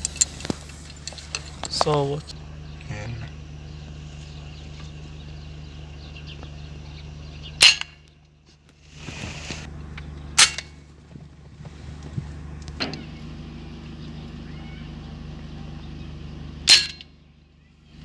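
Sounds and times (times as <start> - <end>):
steady low hum: 0.0 - 18.0
short hiss: 8.9 - 9.7.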